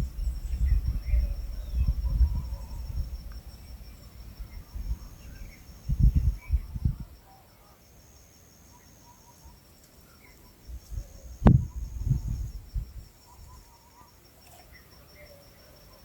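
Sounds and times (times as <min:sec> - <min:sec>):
dull low thumps: 0:00.0 - 0:03.3, 0:04.2 - 0:07.1, 0:11.4 - 0:13.0
crickets chirping: 0:00.0 - 0:16.0.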